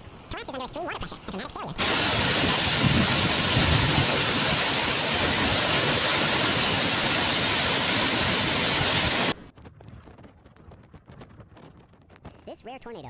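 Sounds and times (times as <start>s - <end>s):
loud steady rushing noise: 1.8s - 9.4s.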